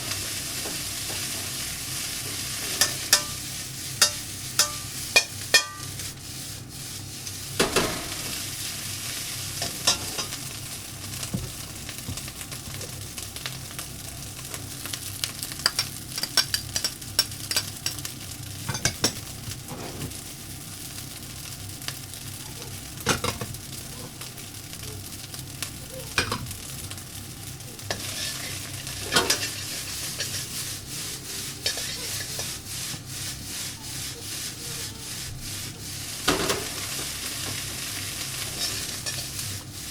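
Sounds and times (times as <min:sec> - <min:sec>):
rice sizzling in a hot pan: 0:00.0 - 0:39.9
utensil scraping and clinking pan: 0:04.0 - 0:05.9, 0:27.9 - 0:30.5, 0:31.4 - 0:32.6.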